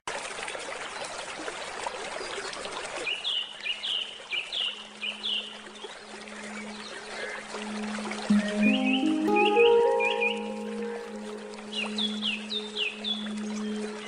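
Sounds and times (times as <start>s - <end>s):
stream water trickling: 0.1s - 14.0s
songbird chirping call: 8.3s - 14.0s.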